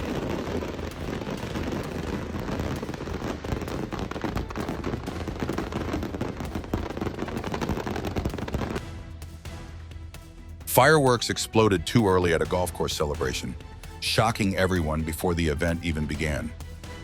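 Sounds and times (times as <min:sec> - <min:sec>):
power lines arcing and crackling: 0:00.0 - 0:08.9.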